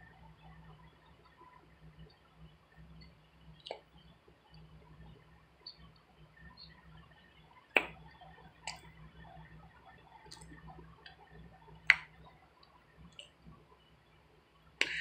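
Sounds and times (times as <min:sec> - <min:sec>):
mouth smacking clicks while eating: 0:03.6 - 0:03.9, 0:07.7 - 0:08.0, 0:08.6 - 0:08.9, 0:11.9 - 0:13.3.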